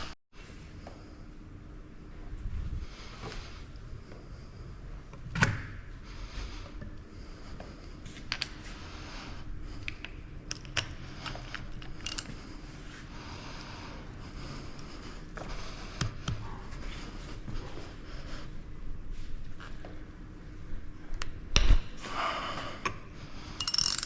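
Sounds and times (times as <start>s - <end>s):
hand tools clinking on steel: 8.3s - 14.4s, 23.6s - 24.0s.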